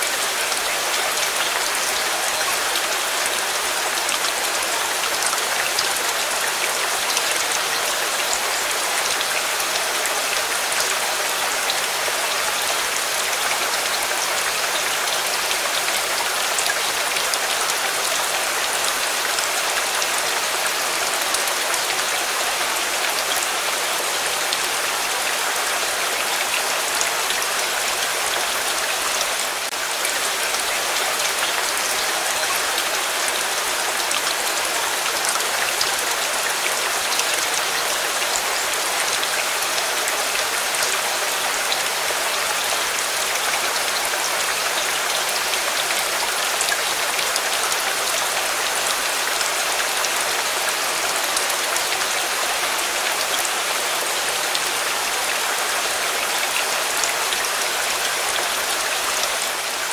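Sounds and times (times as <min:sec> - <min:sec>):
rain falling on a surface: 0:00.0 - 0:59.9.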